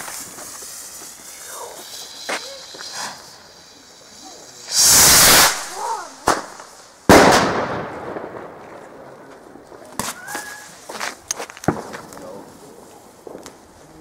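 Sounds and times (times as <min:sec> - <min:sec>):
rocket launching hiss: 0:00.0 - 0:08.6
sharp bang of firework: 0:04.8 - 0:08.4, 0:11.6 - 0:12.2.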